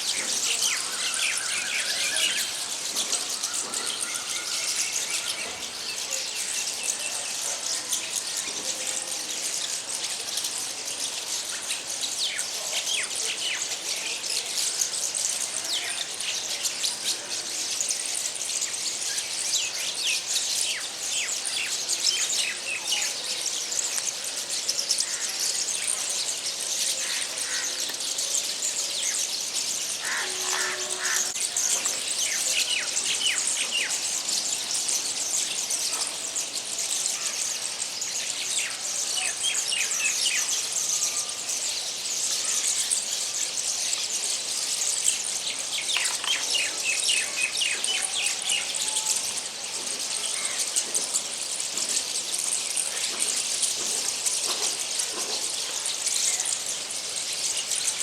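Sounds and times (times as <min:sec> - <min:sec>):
small birds chirping: 0:00.0 - 0:58.0
lower-pitched bird call: 0:30.0 - 0:31.5.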